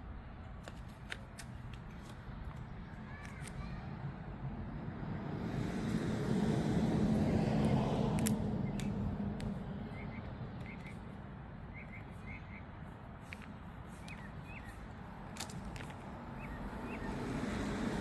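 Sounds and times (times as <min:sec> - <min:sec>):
vehicle passing rumble: 0:02.7 - 0:11.8, 0:15.2 - 0:18.0
birds chirping: 0:08.5 - 0:15.2, 0:15.9 - 0:18.0.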